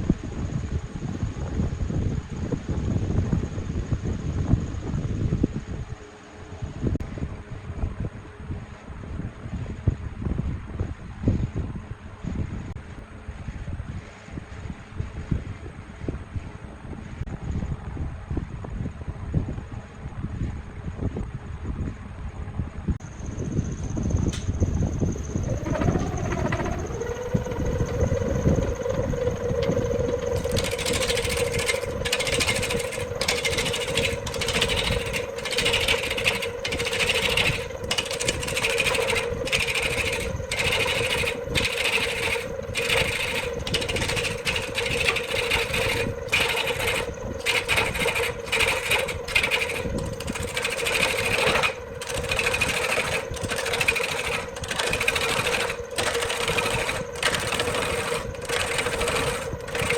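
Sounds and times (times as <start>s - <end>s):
woodworking machine humming: 25.1s - 59.9s
rasping wood cutting: 25.4s - 59.9s.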